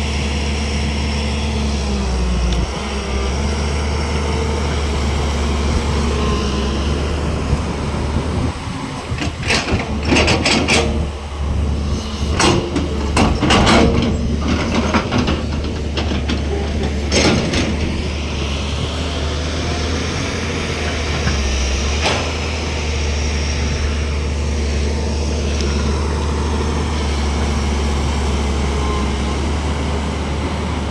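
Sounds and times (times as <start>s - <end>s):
excavator diesel engine droning: 0.0s - 30.9s
metallic knocks and clanks: 9.1s - 11.3s, 12.3s - 18.1s.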